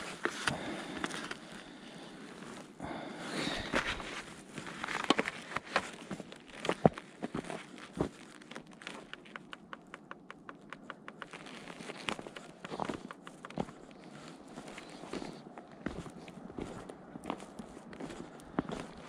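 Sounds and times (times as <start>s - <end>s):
sharp cracks and clicks: 8.4s - 13.8s
light ticks: 8.8s - 13.8s.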